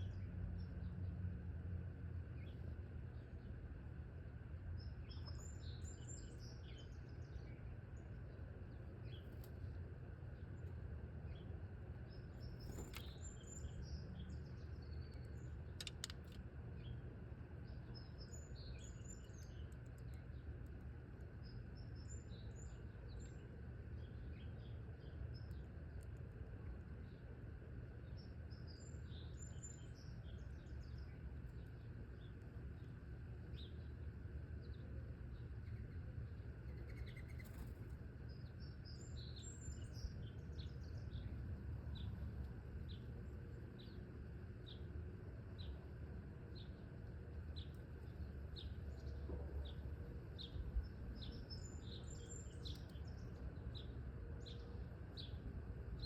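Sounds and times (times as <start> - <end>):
low background rumble: 0.0 - 56.0
small songbirds chirping: 0.0 - 56.0
sharp clicks: 15.8 - 16.4.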